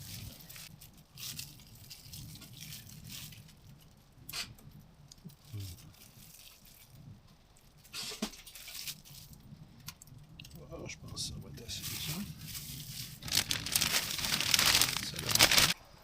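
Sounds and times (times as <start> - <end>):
rustling: 11.7 - 15.8.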